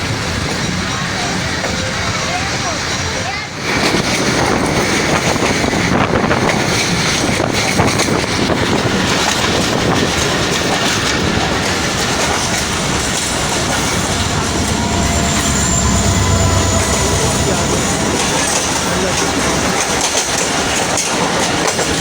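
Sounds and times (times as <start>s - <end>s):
train wheels rumbling on rails: 3.2s - 22.0s
faint steady tones: 11.4s - 21.3s.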